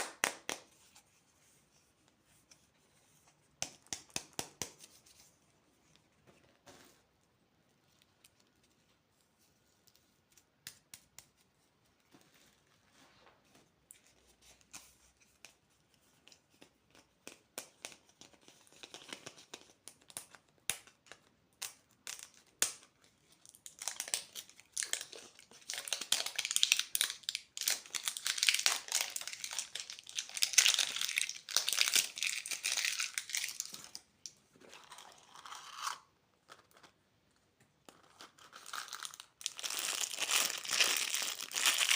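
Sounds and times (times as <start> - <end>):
packaging tearing and crinkling: 38.4 - 41.9.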